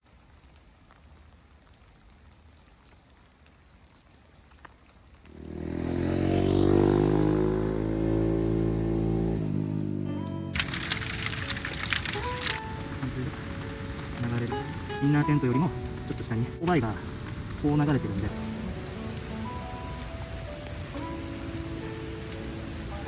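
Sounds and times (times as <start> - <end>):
vehicle engine passing: 5.3 - 12.2.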